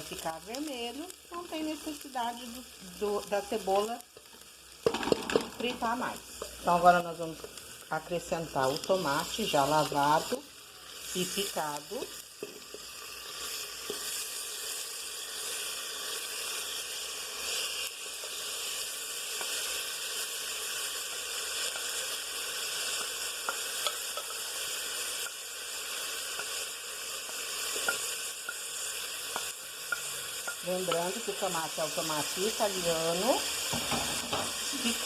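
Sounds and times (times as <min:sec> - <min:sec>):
food sizzling in a pan: 0:00.0 - 0:35.0
spoon clicking against pan: 0:23.0 - 0:24.4, 0:27.3 - 0:28.6, 0:29.3 - 0:31.1.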